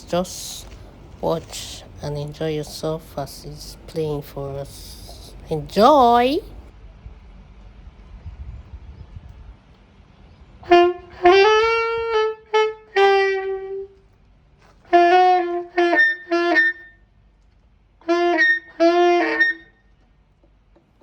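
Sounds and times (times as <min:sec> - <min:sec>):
saxophone held notes: 0:10.6 - 0:14.0, 0:14.8 - 0:17.0, 0:18.0 - 0:19.8.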